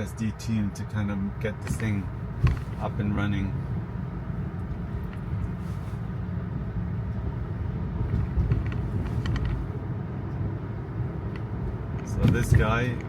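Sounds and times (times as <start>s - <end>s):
tyre and road rumble: 0.0s - 13.0s.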